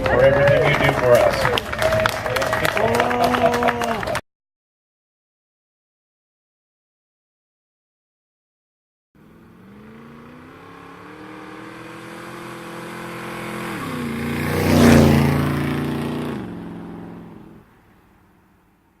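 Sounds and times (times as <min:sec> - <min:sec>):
car driving past: 0:09.2 - 0:18.9.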